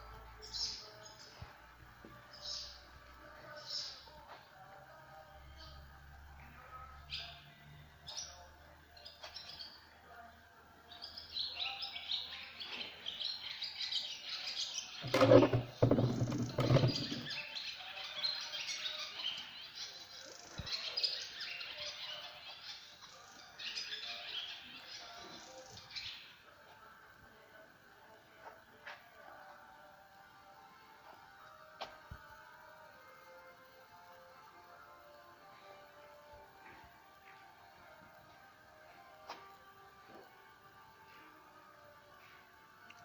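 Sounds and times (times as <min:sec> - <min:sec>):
small birds chirping: 0:00.1 - 0:01.6, 0:10.9 - 0:26.9.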